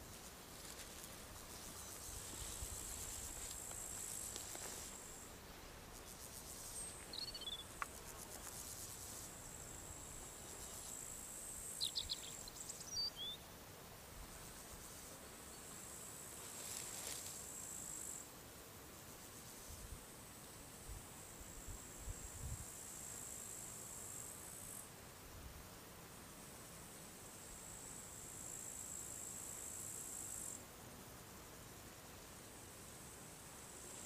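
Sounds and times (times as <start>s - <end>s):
crickets trilling: 0.0s - 13.4s.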